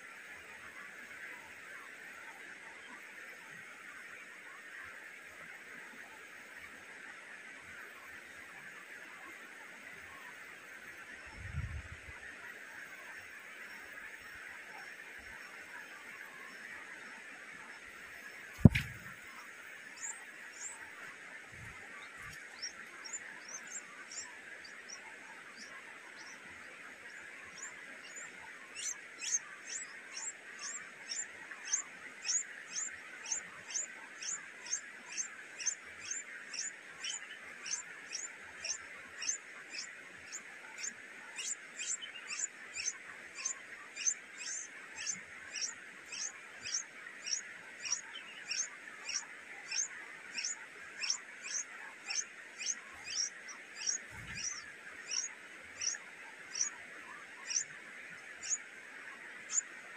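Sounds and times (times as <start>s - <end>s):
bird chirping: 18.5s - 26.4s, 27.1s - 58.7s, 59.4s - 59.7s.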